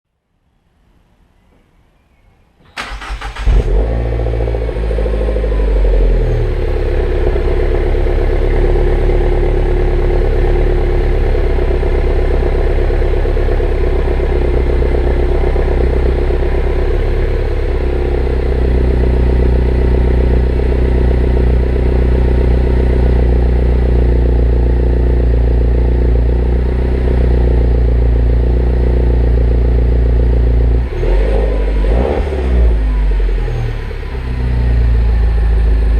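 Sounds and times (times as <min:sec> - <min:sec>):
car engine cranking and starting: 0:02.6 - 0:24.5
car engine idling: 0:02.8 - 0:35.9.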